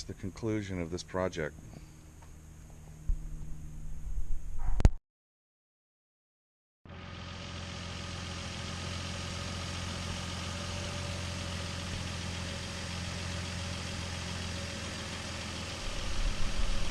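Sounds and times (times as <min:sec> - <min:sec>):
car engine idling: 0:06.9 - 0:16.9.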